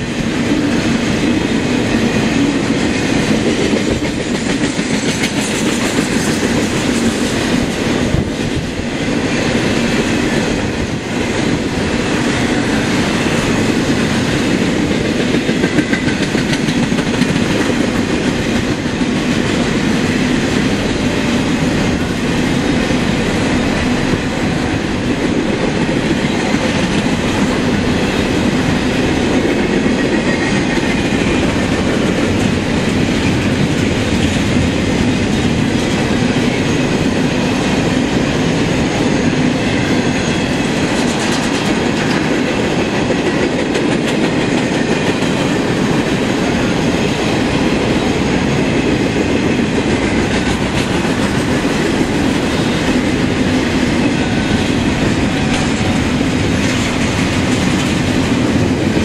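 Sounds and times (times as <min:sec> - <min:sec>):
steel wheels on rails: 0:00.0 - 0:59.0
wheels clacking over rail joints: 0:01.7 - 0:37.7.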